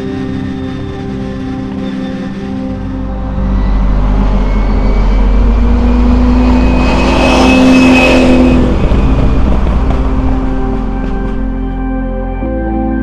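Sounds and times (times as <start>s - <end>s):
sports car engine driving past: 2.4s - 12.0s.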